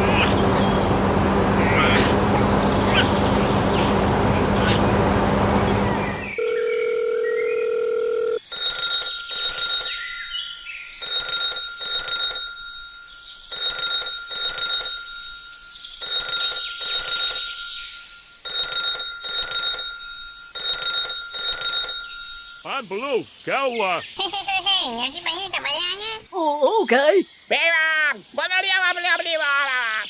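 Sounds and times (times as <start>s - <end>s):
electronic double ringing: 6.4s - 22.7s.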